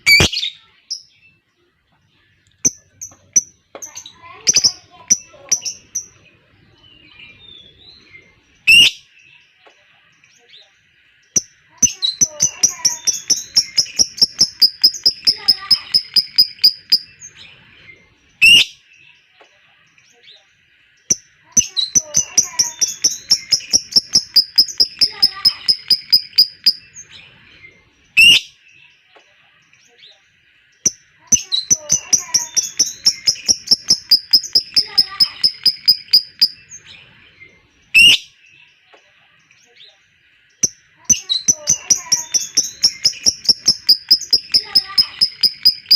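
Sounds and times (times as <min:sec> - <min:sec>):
lovebird chattering chirps: 0:00.0 - 0:00.5, 0:02.6 - 0:06.2, 0:11.3 - 0:17.4, 0:21.0 - 0:27.1, 0:30.9 - 0:36.9, 0:40.6 - 0:45.9
shrill bird call: 0:41.4 - 0:45.9.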